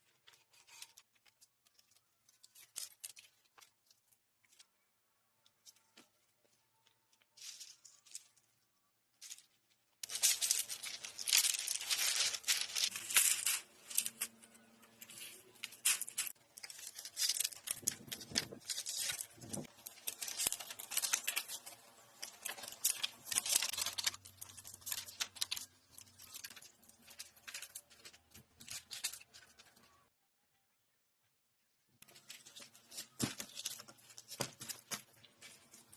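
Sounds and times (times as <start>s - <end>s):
dry leaves rustling and crackling: 9.2s - 29.7s.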